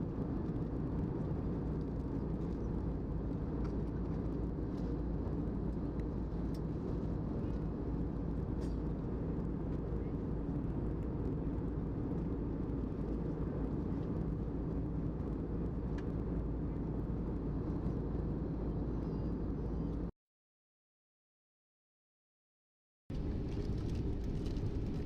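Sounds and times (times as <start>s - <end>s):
airliner cabin roar: 23.1s - 25.0s.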